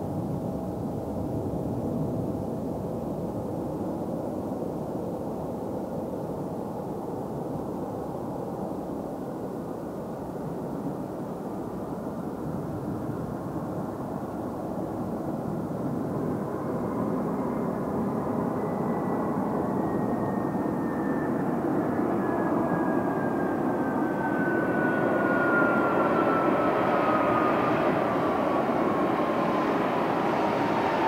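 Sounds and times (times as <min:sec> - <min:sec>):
jet engines rumbling: 0:12.3 - 0:31.0
thin engine whine: 0:16.4 - 0:31.0.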